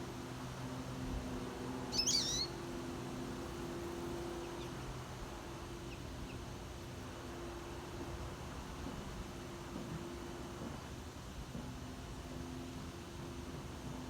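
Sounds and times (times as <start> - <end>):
songbird call notes: 1.9 - 2.6.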